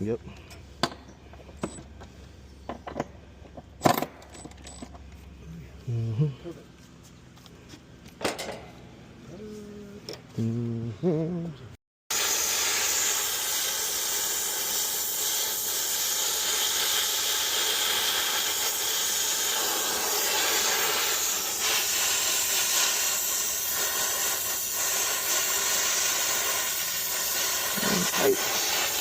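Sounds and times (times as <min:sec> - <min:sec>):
pressurised gas hissing: 0:12.1 - 0:29.0.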